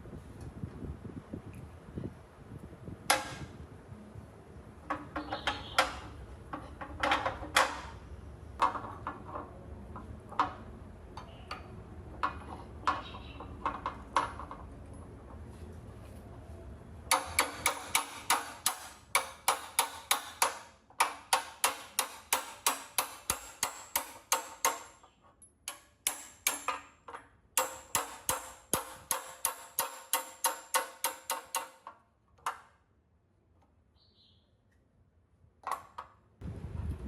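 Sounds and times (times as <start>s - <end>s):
rapid hammer blows on metal: 17.1s - 25.0s.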